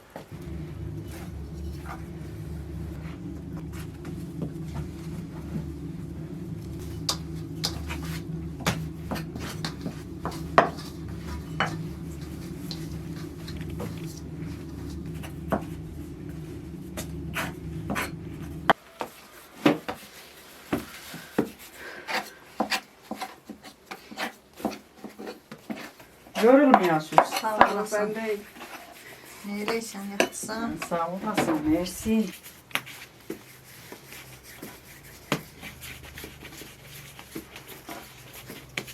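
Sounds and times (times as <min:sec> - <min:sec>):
steady low hum: 0:00.3 - 0:18.8.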